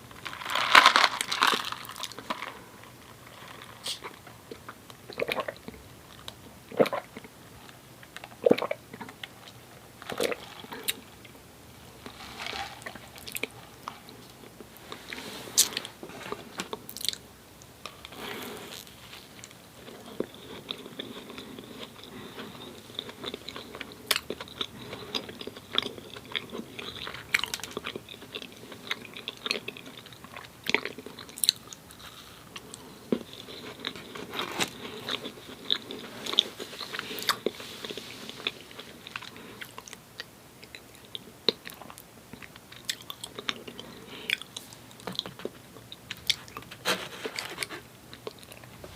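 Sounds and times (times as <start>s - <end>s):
chewing doughnuts: 19.4s - 46.7s.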